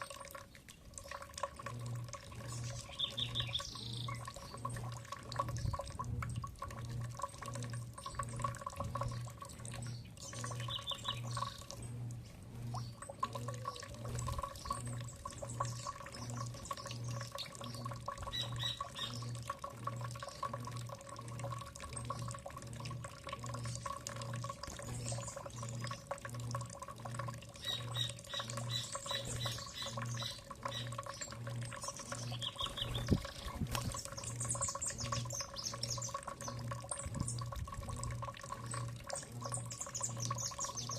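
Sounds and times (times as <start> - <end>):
pulsing low mechanical hum: 0.0 - 40.9
water trickling and dripping: 0.0 - 40.9
birds calling rapid high notes: 1.8 - 6.0, 7.0 - 20.9, 27.5 - 37.6, 38.4 - 40.9.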